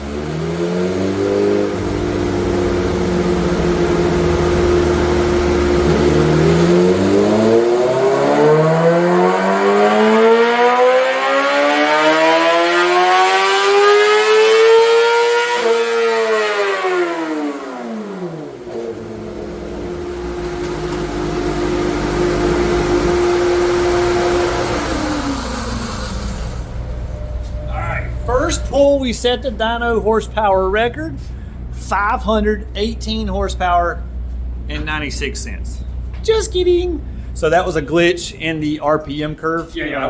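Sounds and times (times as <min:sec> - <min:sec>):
motorcycle engine revving: 0:00.0 - 0:34.6
motorcycle engine idling: 0:01.5 - 0:07.1.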